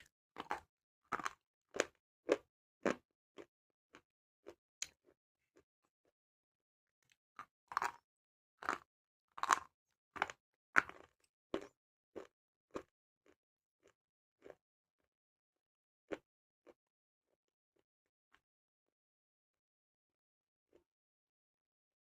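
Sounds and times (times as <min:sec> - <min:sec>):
person chewing crunchy clay: 0:00.4 - 0:05.0, 0:07.4 - 0:14.6.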